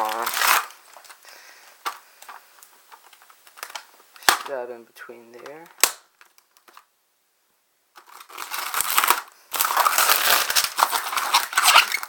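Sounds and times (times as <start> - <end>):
plastic wrap crinkling: 0.0 - 4.6, 5.4 - 6.9, 7.9 - 12.0.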